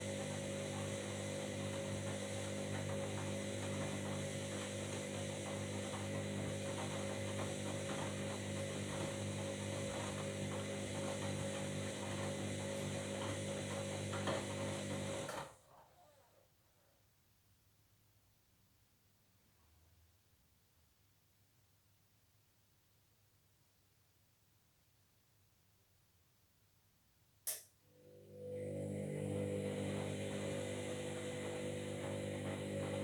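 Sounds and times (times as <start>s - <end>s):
washing machine motor hum: 0.0s - 15.6s, 27.9s - 33.0s.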